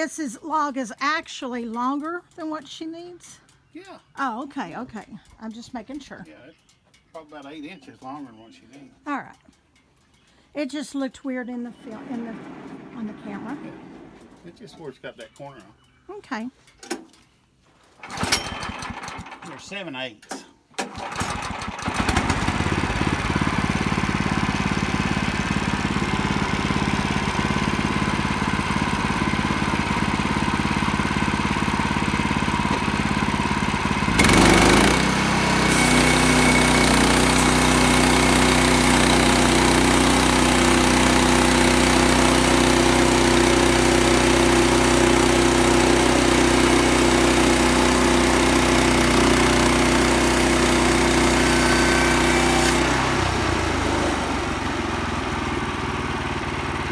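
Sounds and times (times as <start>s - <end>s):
small gasoline engine running: 11.8s - 14.8s, 18.0s - 19.8s, 20.8s - 56.9s.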